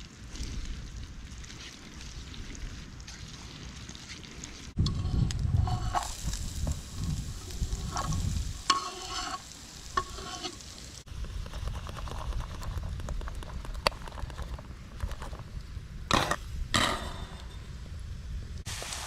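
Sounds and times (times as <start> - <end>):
utensil scraping a pan: 4.8 - 6.2, 7.6 - 10.7
meat sizzling in a pan: 5.6 - 11.1, 18.7 - 19.0.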